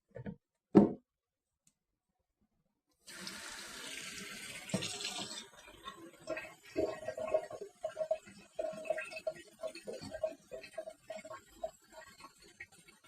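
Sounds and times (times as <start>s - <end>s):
tap water running: 3.0s - 13.0s.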